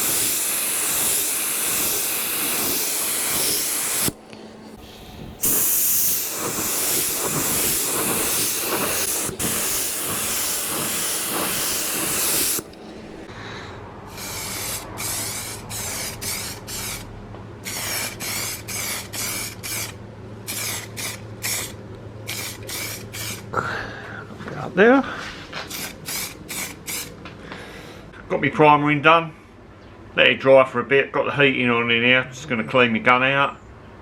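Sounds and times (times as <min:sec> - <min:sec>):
spray gun hissing: 0:00.0 - 0:04.2, 0:04.8 - 0:13.3, 0:14.1 - 0:17.0, 0:17.7 - 0:19.9.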